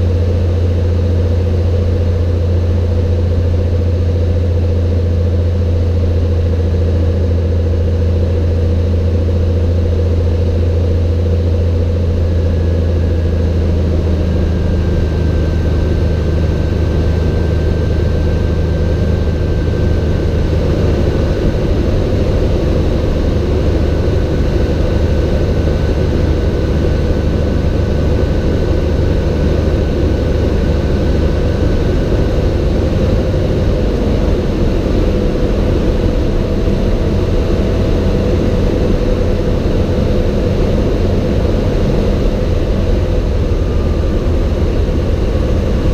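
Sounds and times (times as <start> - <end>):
propeller plane engine drone: 0.0 - 45.9.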